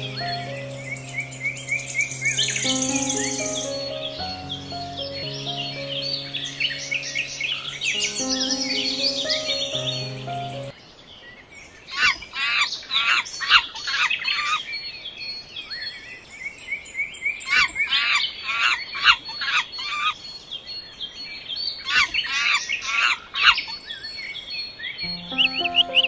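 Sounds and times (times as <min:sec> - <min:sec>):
bird chirping: 0:00.0 - 0:10.7, 0:25.0 - 0:26.0.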